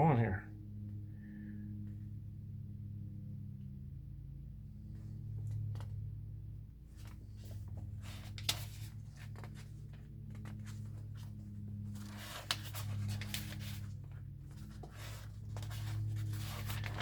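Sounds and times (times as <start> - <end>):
low hum: 0.0 - 17.0
paper pages turning and rustling: 6.9 - 17.0.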